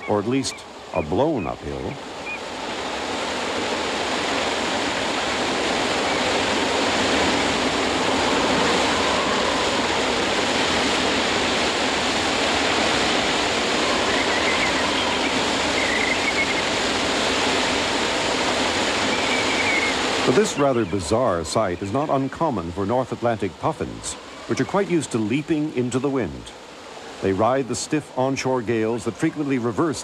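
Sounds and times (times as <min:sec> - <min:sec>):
waterfall rushing: 0:00.0 - 0:30.0
strong wind: 0:01.8 - 0:24.6.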